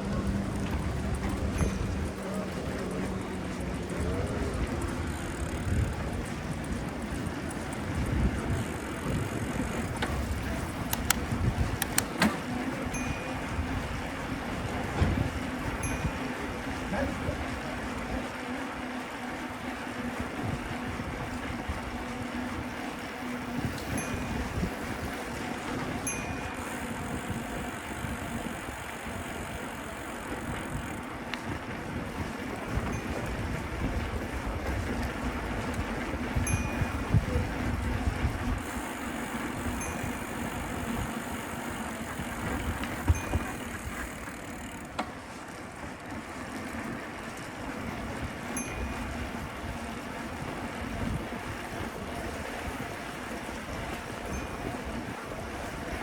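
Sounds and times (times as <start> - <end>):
low rumbles: 0.0 - 17.4
bicycle tyre and road noise: 0.0 - 56.0
wind rumbling on microphone: 0.0 - 56.0
sharp click: 10.9 - 11.2, 11.8 - 12.4.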